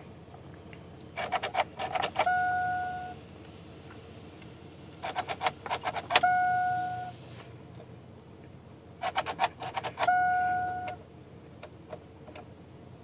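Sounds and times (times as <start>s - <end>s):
ignition key clicking: 1.2s - 2.7s, 5.0s - 6.5s, 9.0s - 11.0s
electronic chime tone: 2.3s - 3.2s, 6.2s - 7.1s, 10.1s - 11.0s.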